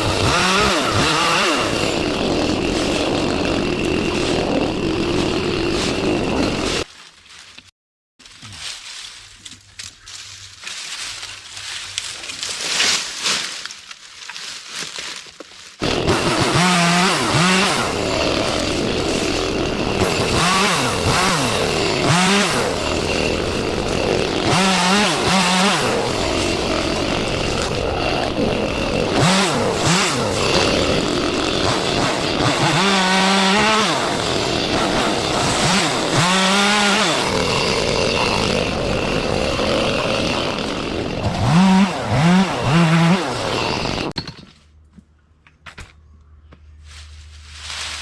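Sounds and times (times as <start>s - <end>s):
chainsaw revving while cutting: 0.0s - 6.9s, 15.8s - 44.2s
rustling and scraping in brush: 6.9s - 15.8s, 46.7s - 48.0s.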